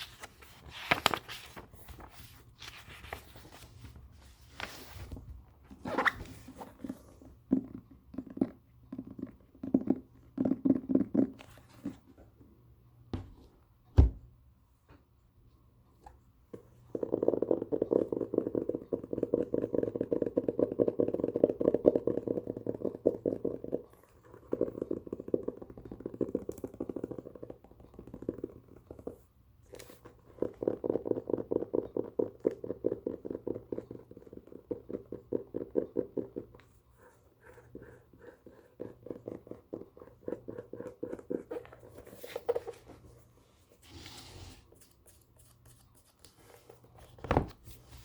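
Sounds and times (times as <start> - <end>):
fingers tapping and scratching book: 0.0 - 12.1, 16.9 - 43.0.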